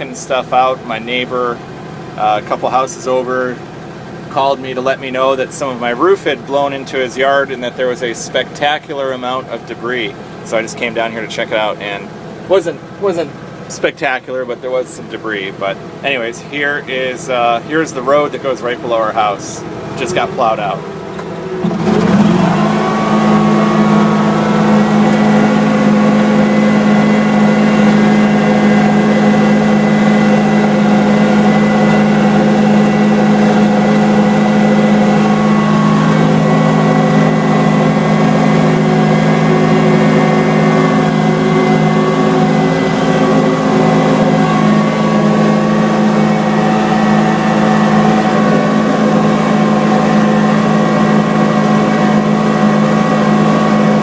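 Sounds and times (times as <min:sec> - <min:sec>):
vehicle engine accelerating: 0:16.9 - 0:54.0.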